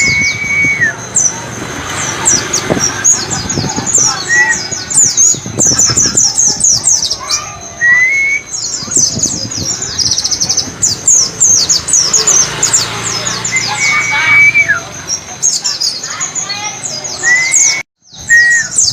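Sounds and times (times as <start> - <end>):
bird whistles: 0.0 - 1.3, 7.0 - 9.2, 13.5 - 14.9, 17.1 - 18.9
white-eye chirping and trilling: 0.0 - 18.9.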